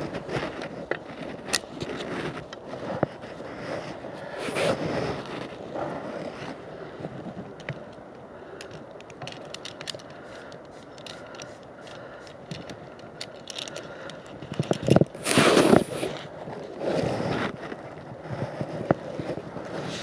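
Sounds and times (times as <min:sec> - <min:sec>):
wind on microphone: 0:00.0 - 0:09.3, 0:14.2 - 0:20.0
rustling and scraping handling noise: 0:00.0 - 0:20.0.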